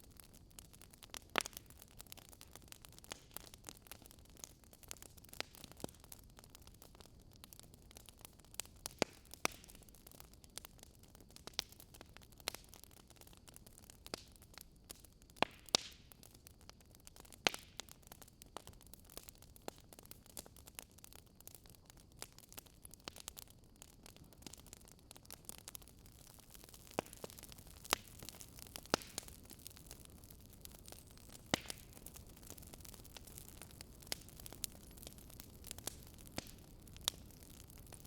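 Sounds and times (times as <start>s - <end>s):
wood fire crackling and popping: 0.0s - 38.0s.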